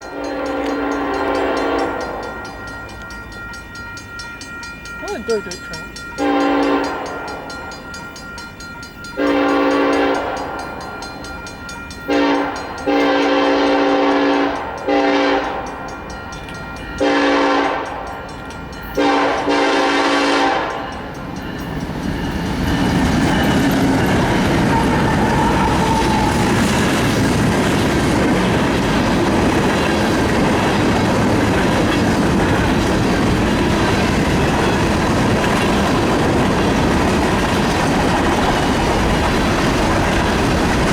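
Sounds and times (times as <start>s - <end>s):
train rumbling past: 0.0s - 40.9s
train air horn blasts: 0.1s - 2.2s, 6.2s - 7.2s, 12.1s - 15.6s, 17.0s - 17.9s, 19.0s - 20.8s
rail clatter: 17.8s - 40.9s.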